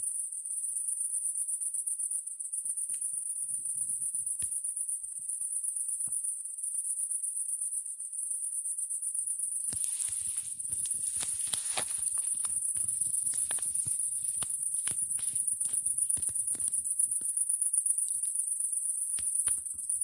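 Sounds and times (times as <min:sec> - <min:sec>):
crickets chirping: 0:00.0 - 0:20.0
rustling: 0:09.7 - 0:17.3
bonfire crackles: 0:09.7 - 0:17.4.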